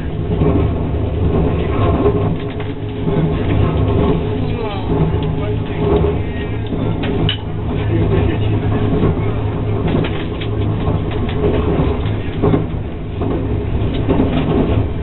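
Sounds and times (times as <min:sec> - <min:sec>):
rush of noise: 0:00.0 - 0:15.0
train cabin hum and rumble: 0:00.0 - 0:15.0.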